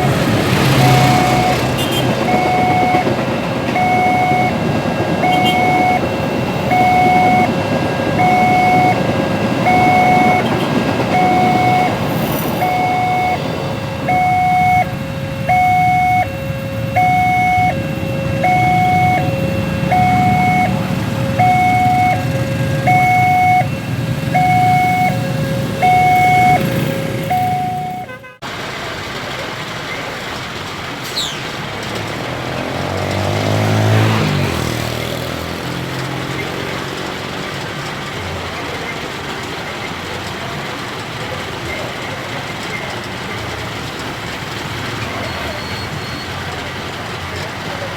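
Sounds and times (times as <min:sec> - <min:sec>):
level crossing two-tone alarm: 0:00.0 - 0:28.2
train and road rumble: 0:00.0 - 0:47.9.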